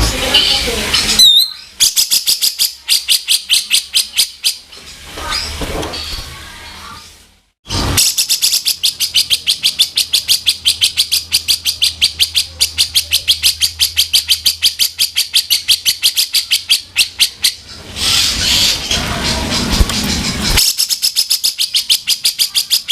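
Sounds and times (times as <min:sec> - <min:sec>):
bird giving harsh rattling call: 0:07.8 - 0:22.9.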